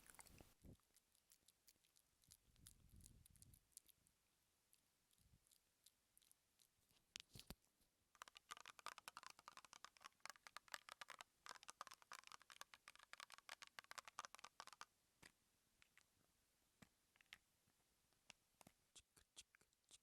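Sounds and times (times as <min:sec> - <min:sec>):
rapid crackling clicks: 0:08.2 - 0:14.9.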